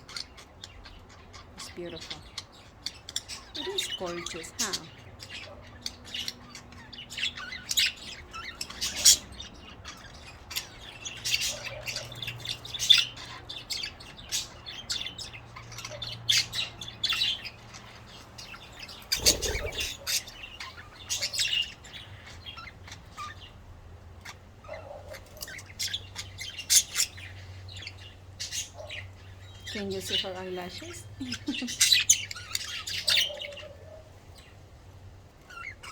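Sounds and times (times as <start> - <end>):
budgerigars chirping: 0.0 - 23.6, 24.2 - 34.7, 35.5 - 35.9.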